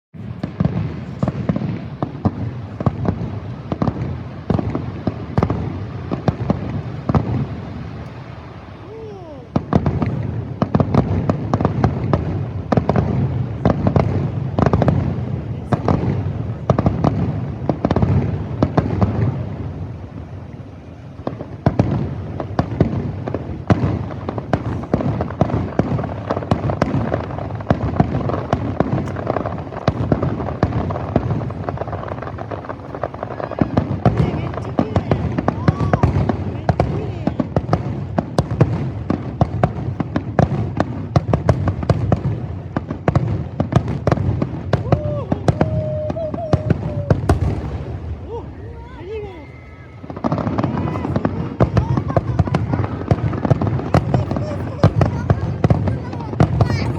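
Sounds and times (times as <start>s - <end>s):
fireworks crackling: 0.2s - 56.9s
firework whistling glide: 44.6s - 56.9s
firework shells bursting: 45.6s - 56.9s.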